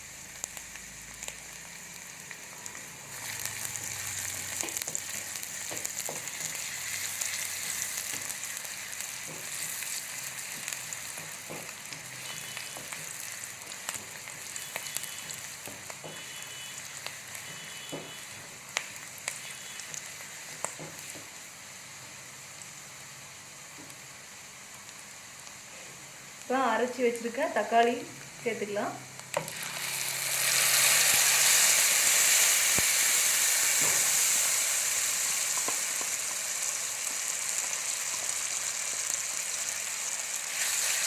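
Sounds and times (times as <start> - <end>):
onion sizzling in hot oil: 0.0 - 41.0.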